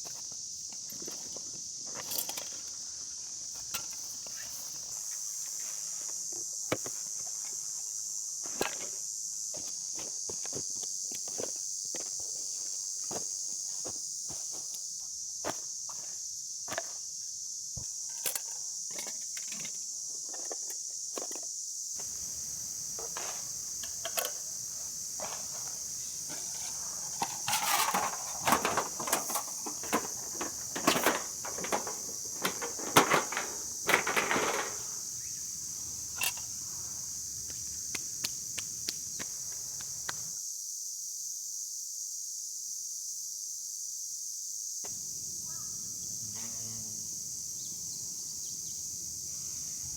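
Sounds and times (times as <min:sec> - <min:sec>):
insect chorus chirring: 0:00.0 - 0:49.9
handling clicks and rustles: 0:00.7 - 0:02.8, 0:22.0 - 0:35.2.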